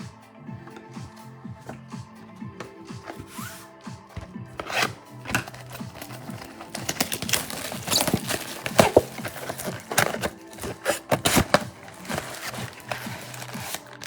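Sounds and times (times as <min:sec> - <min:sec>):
wrappers crinkling and tearing: 0:04.5 - 0:14.0.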